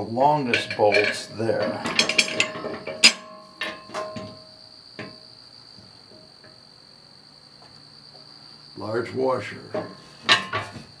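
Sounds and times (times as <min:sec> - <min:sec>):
metal bolts and nuts clinking: 0:00.4 - 0:05.2, 0:09.7 - 0:10.8.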